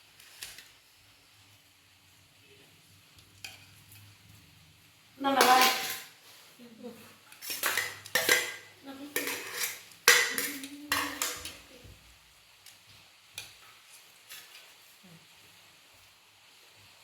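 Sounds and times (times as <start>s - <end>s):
metal utensils clattering: 5.4s - 6.1s, 7.4s - 11.7s.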